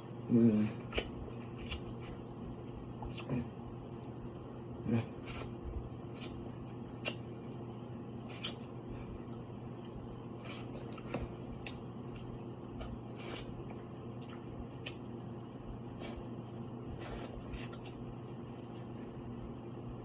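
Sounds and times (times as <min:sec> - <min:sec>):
steady low hum: 0:00.0 - 0:20.0
wet chewing mouth sounds: 0:00.8 - 0:07.6, 0:08.2 - 0:19.0.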